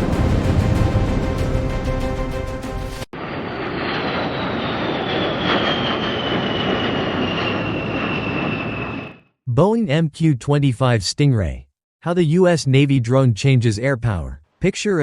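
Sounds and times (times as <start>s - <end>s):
music track: 0.0s - 3.1s
jet engine rush and whine: 3.1s - 9.3s.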